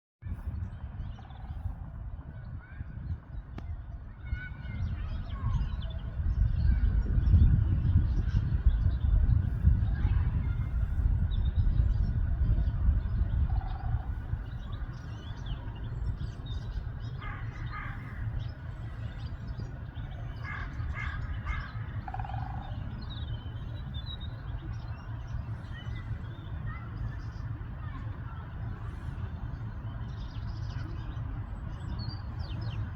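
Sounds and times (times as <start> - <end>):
low steady rumble: 0.3 - 32.9
birds harsh calls: 13.4 - 32.9.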